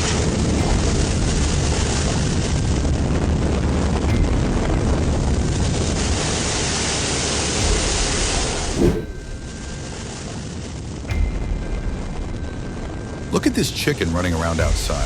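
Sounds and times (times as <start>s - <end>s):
storm wind buffeting microphone: 8.6s - 9.6s.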